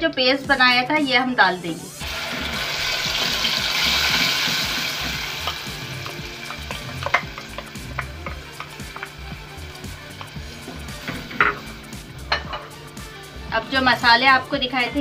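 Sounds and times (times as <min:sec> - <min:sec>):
paste sizzling in hot oil: 0:02.0 - 0:13.0
wooden spoon knocking on pot: 0:11.0 - 0:11.7, 0:12.3 - 0:12.7.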